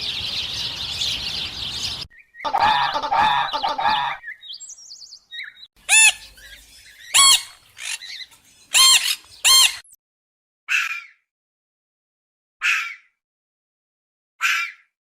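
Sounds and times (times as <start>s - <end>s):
animal squeaky calls: 2.5s - 4.2s, 5.9s - 10.0s.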